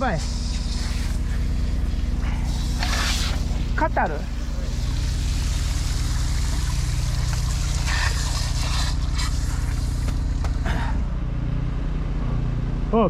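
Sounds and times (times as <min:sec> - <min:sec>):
water running and spraying: 0:00.0 - 0:10.9
engine idling: 0:00.0 - 0:13.0.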